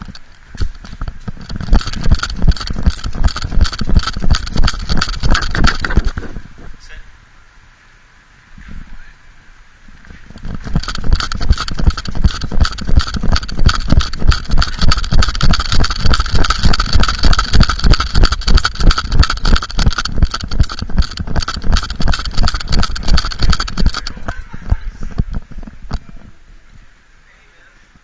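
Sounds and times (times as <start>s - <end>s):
camera knocking in harness: 0.0s - 6.4s, 10.3s - 26.2s.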